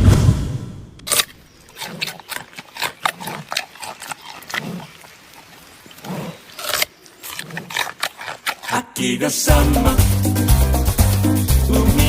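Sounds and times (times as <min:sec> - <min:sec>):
panda chewing food: 0:01.1 - 0:09.0.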